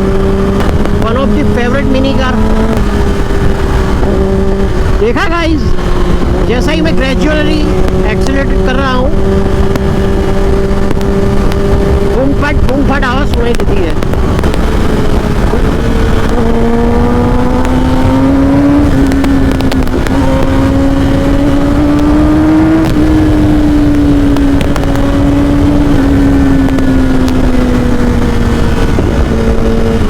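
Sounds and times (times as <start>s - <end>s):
exhaust pops and crackles: 0.0s - 30.0s
motorcycle engine accelerating: 0.0s - 30.0s
wind rush on microphone: 0.0s - 30.0s.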